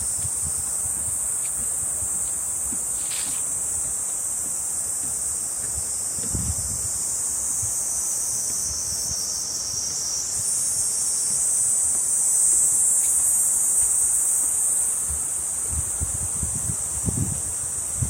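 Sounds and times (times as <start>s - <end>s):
cicadas buzzing: 0.0s - 18.0s.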